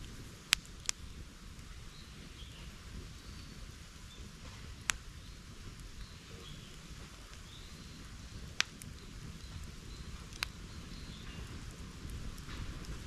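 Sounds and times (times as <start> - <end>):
bonfire crackling and hissing: 0.0 - 13.0
sharp fire pops: 0.0 - 13.0.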